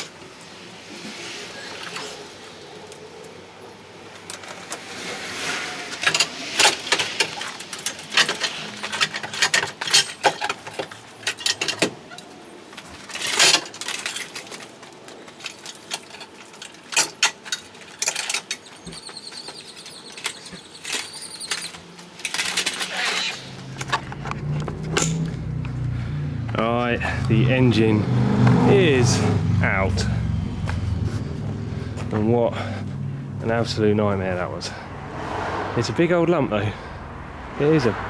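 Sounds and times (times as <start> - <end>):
metal tools clinking and clanking: 6.0 - 25.9
high squeak: 18.7 - 23.9.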